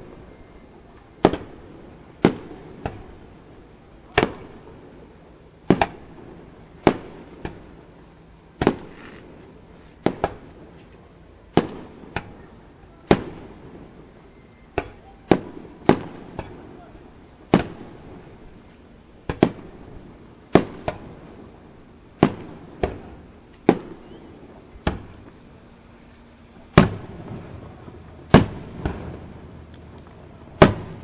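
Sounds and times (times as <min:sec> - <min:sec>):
firework shells bursting: 0:26.7 - 0:31.0.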